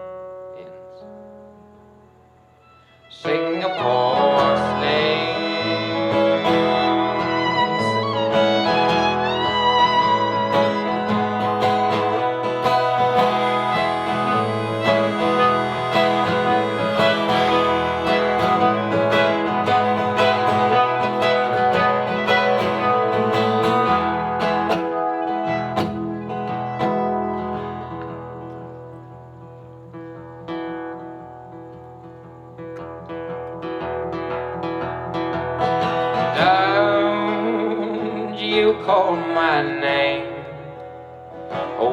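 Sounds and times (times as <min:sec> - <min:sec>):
sliding lead melody: 0:02.6 - 0:38.5
strummed acoustic guitar: 0:02.6 - 0:41.9.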